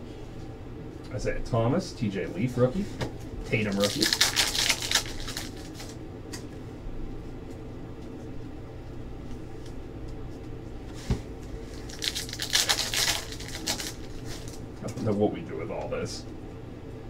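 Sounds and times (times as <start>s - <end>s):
low room hum: 0.0s - 17.0s
wrappers rustling and crinkling: 3.5s - 6.0s, 11.7s - 14.6s.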